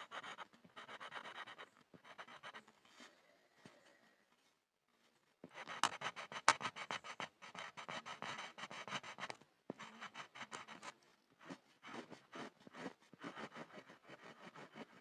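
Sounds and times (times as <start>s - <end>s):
pencil scribbling on board: 0.0s - 2.7s, 5.5s - 15.0s.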